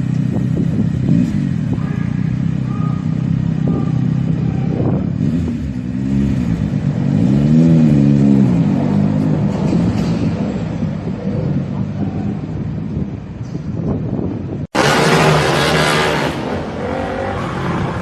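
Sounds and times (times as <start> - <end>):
car engine revving: 14.8 - 18.0.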